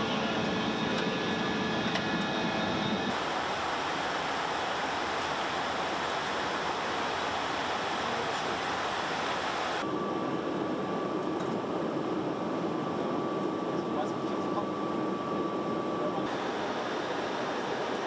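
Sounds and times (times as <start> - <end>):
jet aircraft rushing noise: 3.0 - 9.8
thin steady hum: 3.1 - 9.8.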